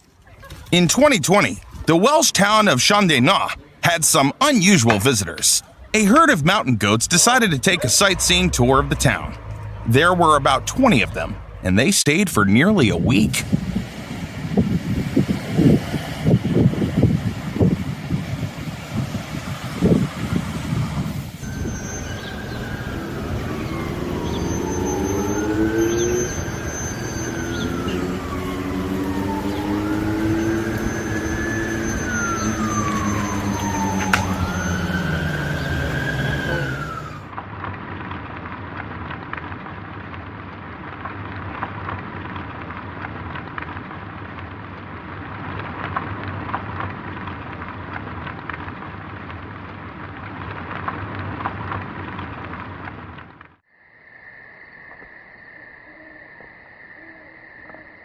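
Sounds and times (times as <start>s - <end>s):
rushing street noise: 0.0s - 53.6s
traffic rumble: 0.0s - 53.6s
wailing emergency siren: 7.3s - 11.9s, 21.3s - 37.3s.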